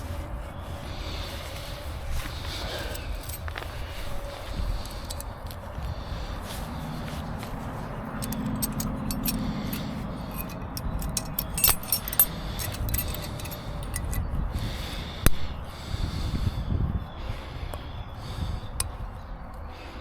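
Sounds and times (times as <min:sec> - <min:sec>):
metallic clicks and clinks: 0:02.8 - 0:03.5, 0:04.8 - 0:05.3, 0:08.1 - 0:14.3.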